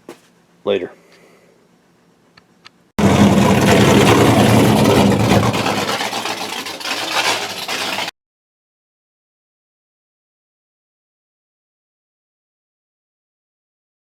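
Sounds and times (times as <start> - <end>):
loud engine running: 3.0 - 8.1.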